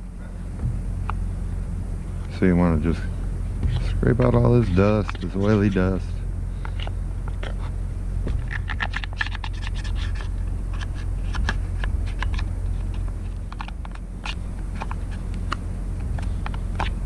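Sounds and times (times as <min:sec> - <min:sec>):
sawdust scraping: 0:03.6 - 0:06.2.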